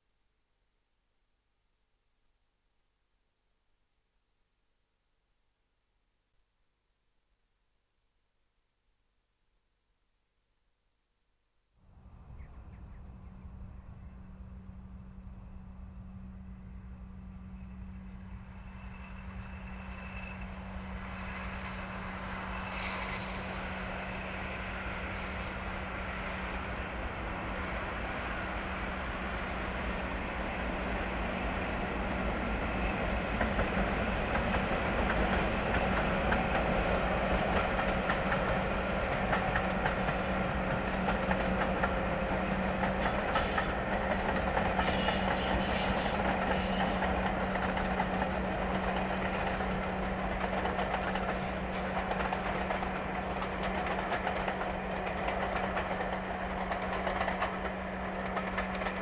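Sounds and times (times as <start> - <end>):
diesel locomotive engine drone: 11.9 - 59.0
wheels clicking over rail joints: 46.2 - 59.0.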